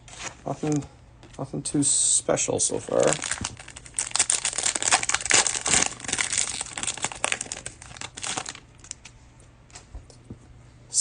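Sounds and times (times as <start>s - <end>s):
cellophane wrapper crinkling: 2.7s - 9.2s.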